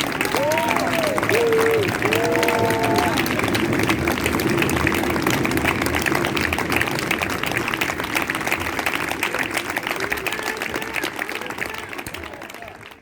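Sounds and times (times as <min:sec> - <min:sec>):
audience applauding: 0:00.0 - 0:13.0
voices: 0:09.1 - 0:13.0.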